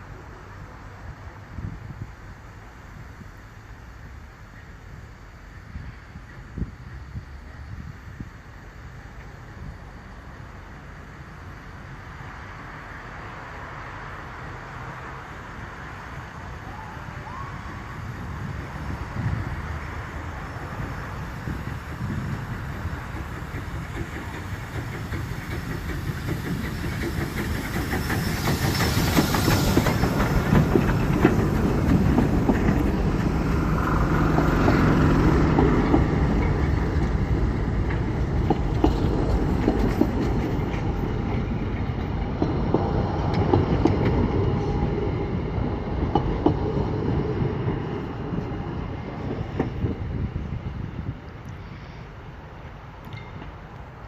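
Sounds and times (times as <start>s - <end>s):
train running past: 0.0s - 54.0s
wheels clicking over rail joints: 18.4s - 51.9s.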